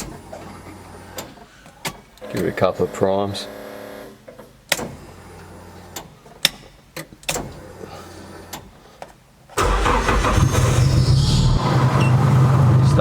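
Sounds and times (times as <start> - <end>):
car engine starting and idling: 9.6 - 13.0.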